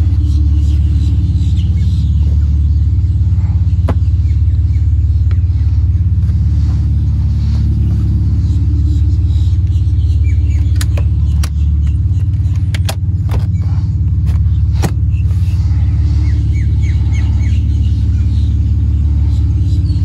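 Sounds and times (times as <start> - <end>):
car engine idling: 0.0 - 20.0
sharp clicks and knocks: 10.5 - 13.7.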